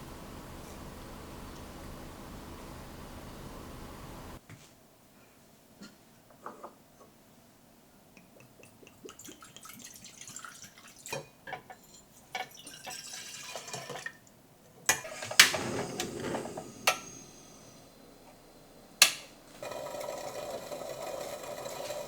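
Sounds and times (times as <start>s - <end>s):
liquid dripping and pouring: 8.2s - 14.2s.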